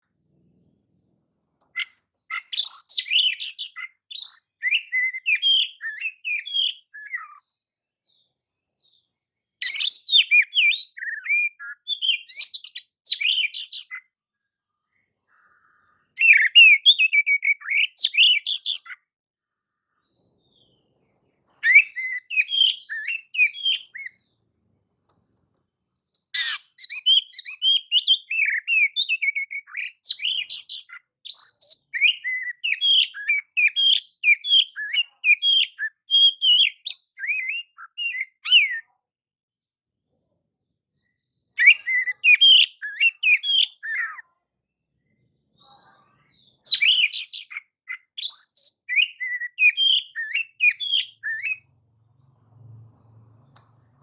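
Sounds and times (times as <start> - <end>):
bird singing whistled phrases: 1.8 - 7.4, 9.6 - 14.1, 16.1 - 19.0, 21.6 - 24.2, 26.4 - 38.9, 41.6 - 44.2, 46.4 - 51.6.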